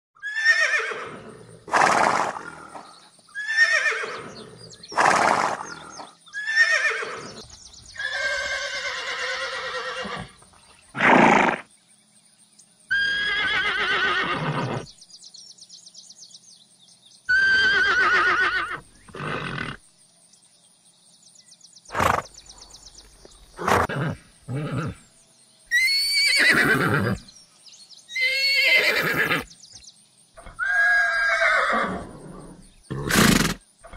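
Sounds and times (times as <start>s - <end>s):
horse whinnying: 0.2s - 2.4s, 3.4s - 5.8s, 6.4s - 7.4s, 8.0s - 10.4s, 11.0s - 11.7s, 12.9s - 14.9s, 17.3s - 19.8s, 23.6s - 25.0s, 25.7s - 27.2s, 28.1s - 29.5s, 30.4s - 33.9s.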